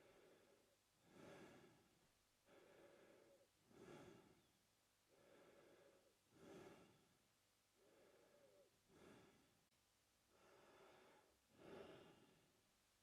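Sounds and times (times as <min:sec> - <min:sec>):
man breathing through mouth: 0:00.0 - 0:01.9, 0:02.5 - 0:04.5, 0:05.1 - 0:07.0, 0:10.4 - 0:12.4.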